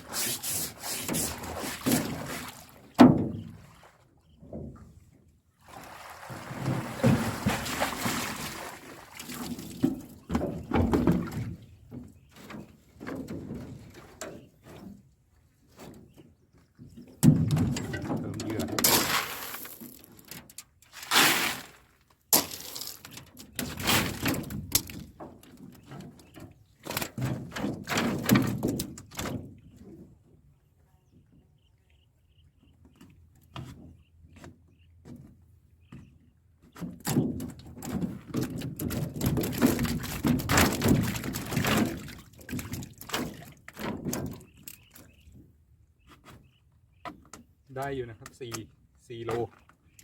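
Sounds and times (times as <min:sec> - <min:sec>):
water splashing and pouring: 0:00.0 - 0:03.0, 0:05.6 - 0:11.5, 0:18.8 - 0:25.0, 0:38.4 - 0:43.7
knocks and thuds in a boat: 0:00.1 - 0:19.2, 0:22.4 - 0:50.0.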